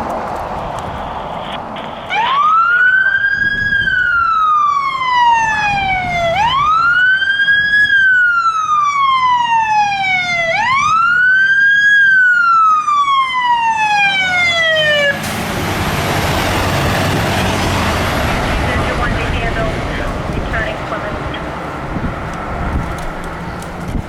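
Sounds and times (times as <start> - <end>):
fire truck siren wailing: 0.0 - 24.0
steady rushing noise: 16.0 - 24.0.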